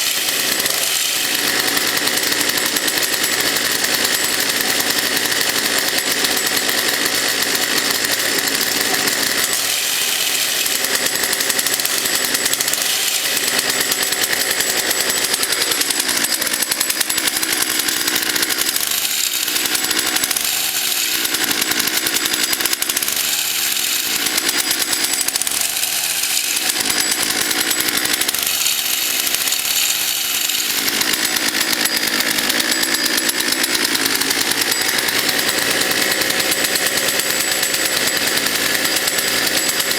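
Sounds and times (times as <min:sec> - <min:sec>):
two-stroke engine revving: 0:00.0 - 0:39.9.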